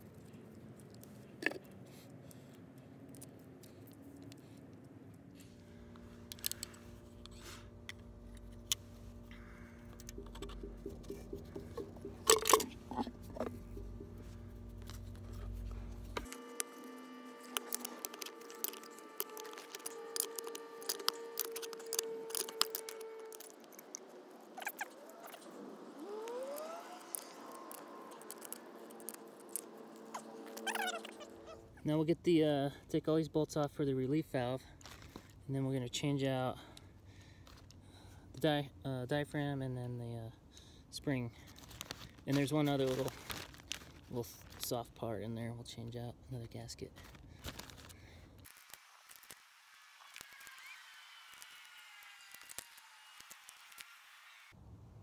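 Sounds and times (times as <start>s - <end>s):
faint steady hum: 0.0s - 55.0s
clicks and rattles of small parts: 6.2s - 13.6s, 16.2s - 25.5s, 26.2s - 31.2s, 41.5s - 44.8s, 46.9s - 49.4s, 50.0s - 54.0s
clicks and knocks of parts handled: 6.3s - 8.8s, 17.4s - 24.0s, 27.1s - 30.8s
short rising squeaks: 8.4s - 31.8s.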